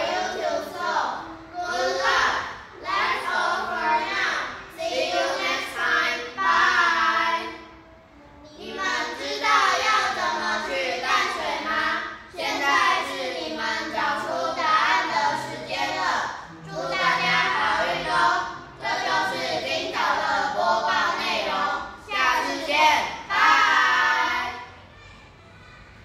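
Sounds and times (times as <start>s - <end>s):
children singing: 0.0s - 26.0s.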